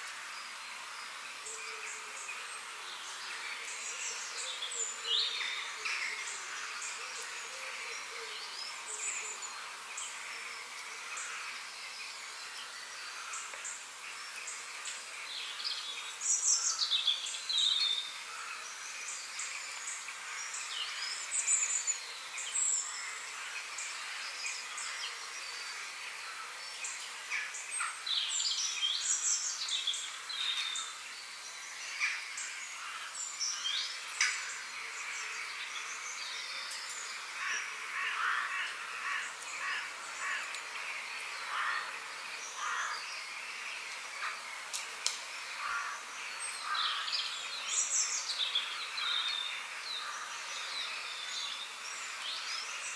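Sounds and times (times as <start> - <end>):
high background hiss: 0.0 - 52.9
small birds chirping and singing: 0.0 - 52.9.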